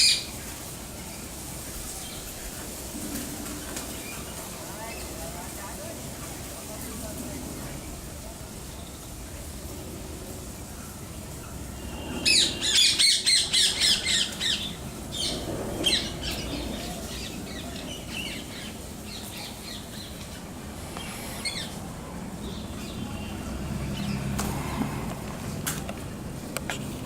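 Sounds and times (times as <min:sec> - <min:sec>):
harsh bird calls: 0:11.2 - 0:25.0.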